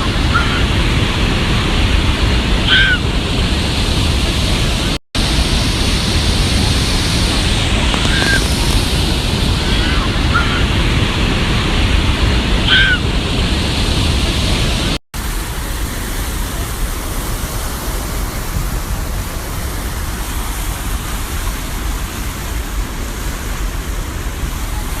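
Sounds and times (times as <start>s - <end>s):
waterfall roaring: 0.0s - 25.0s.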